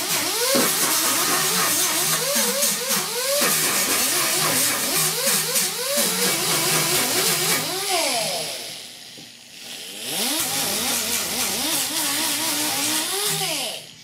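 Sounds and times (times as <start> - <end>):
angle grinder grinding steel: 0.0 - 14.0.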